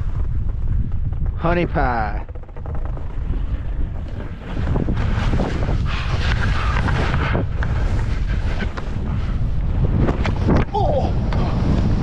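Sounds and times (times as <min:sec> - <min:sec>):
wind buffeting microphone: 0:00.0 - 0:12.0
skis hissing through snow: 0:05.0 - 0:08.7.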